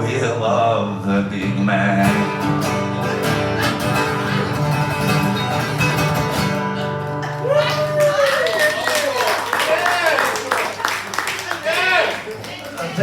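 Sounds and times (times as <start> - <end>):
guitar chords: 0.0 - 7.5
audience voices: 0.0 - 13.0.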